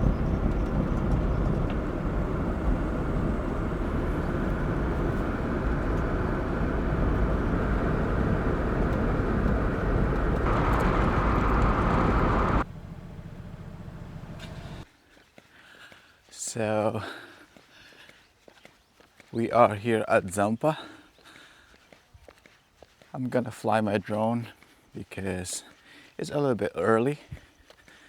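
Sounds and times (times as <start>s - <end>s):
car driving road noise: 0.0s - 14.8s.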